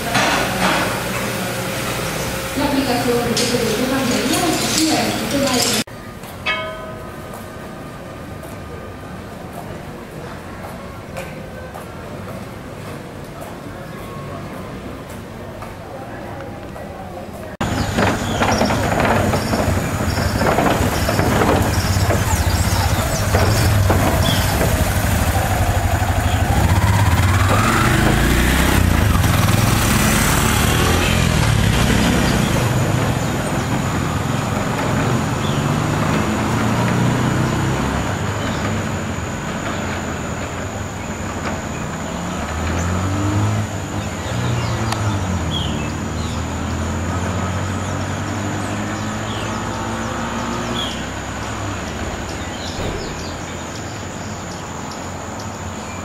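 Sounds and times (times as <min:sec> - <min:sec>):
motorcycle engine revving: 0:17.6 - 0:56.0.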